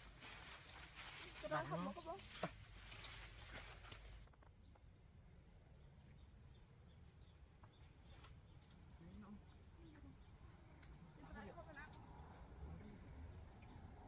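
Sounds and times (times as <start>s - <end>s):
cricket trilling: 4.2s - 14.0s.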